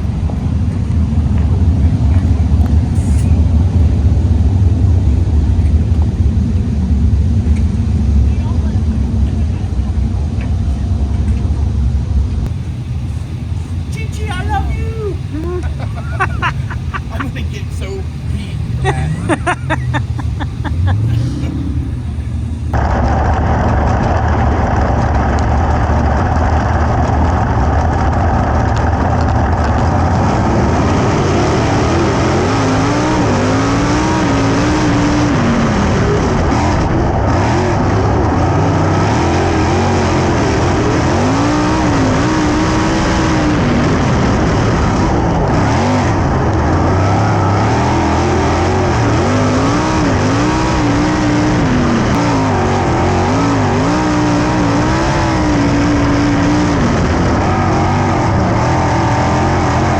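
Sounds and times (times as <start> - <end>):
race car engines running hard: 0.0 - 59.9.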